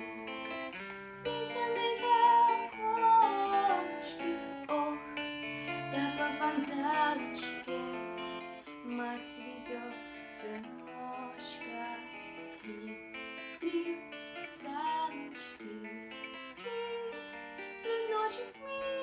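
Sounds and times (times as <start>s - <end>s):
acoustic guitar strumming: 0.0s - 18.6s.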